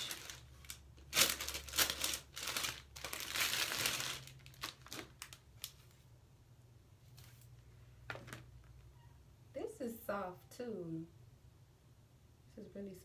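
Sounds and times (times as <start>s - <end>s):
packaging crinkling and rustling: 0.0s - 6.0s.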